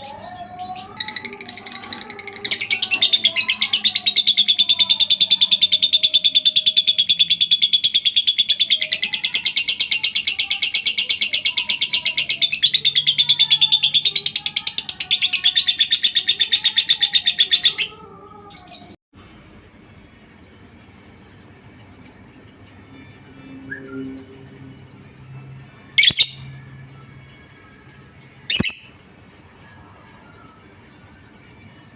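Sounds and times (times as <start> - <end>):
lovebird chattering trill: 28.5 - 28.9.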